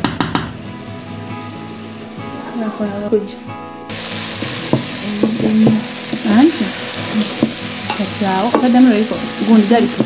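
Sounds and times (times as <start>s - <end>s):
chicken sizzling in a pan: 3.9s - 10.0s.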